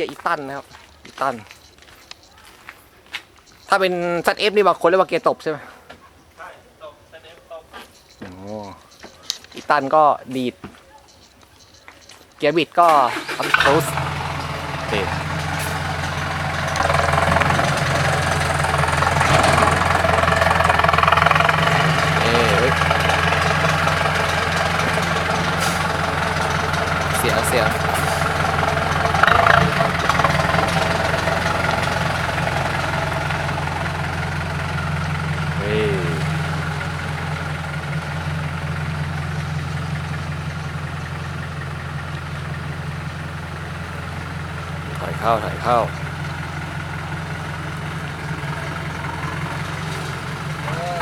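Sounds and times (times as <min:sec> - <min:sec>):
diesel truck engine running: 0:13.0 - 0:51.0.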